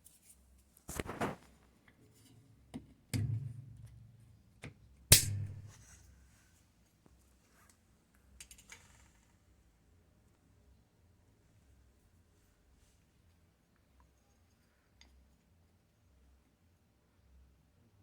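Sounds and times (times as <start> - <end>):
short low ringing: 3.2 - 4.2, 5.1 - 5.9.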